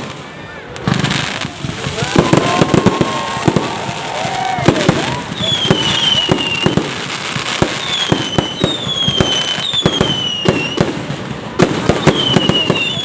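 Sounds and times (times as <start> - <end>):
fireworks bangs and crackling: 0.0 - 13.0
falling firework whistles: 0.9 - 13.0.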